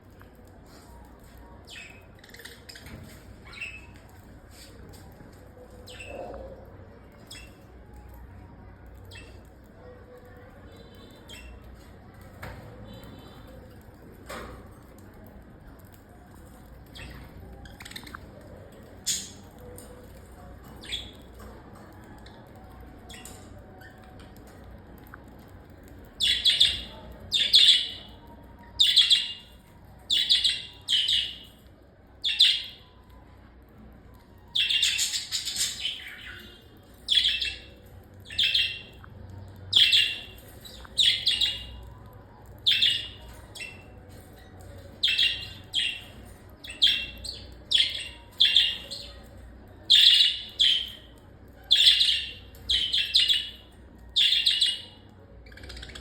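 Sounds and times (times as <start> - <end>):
bird chirping: 45.0 - 49.2.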